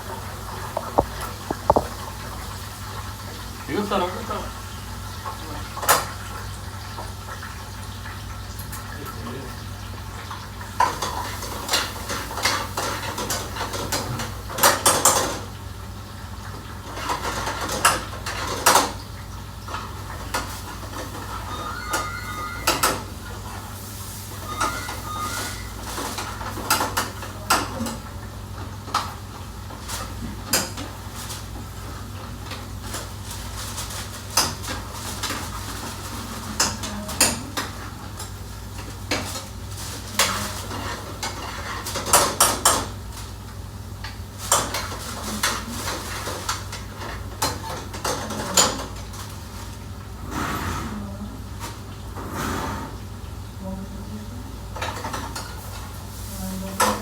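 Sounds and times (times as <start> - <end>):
pots and pans clattering: 0.4 - 3.9, 10.2 - 15.7, 16.4 - 43.4, 44.1 - 49.8, 54.6 - 57.0.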